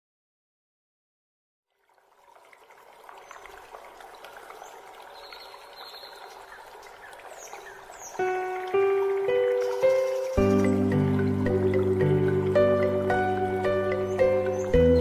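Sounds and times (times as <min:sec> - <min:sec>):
stream water flowing: 0:01.7 - 0:15.0
music with sustained notes: 0:08.1 - 0:15.0.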